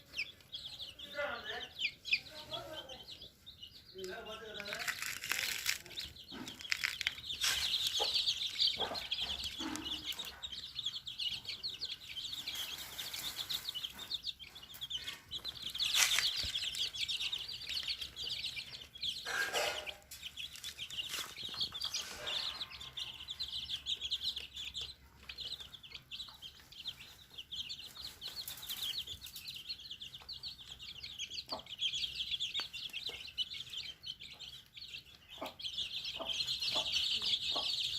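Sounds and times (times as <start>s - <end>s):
chickens clucking: 0.0s - 37.9s.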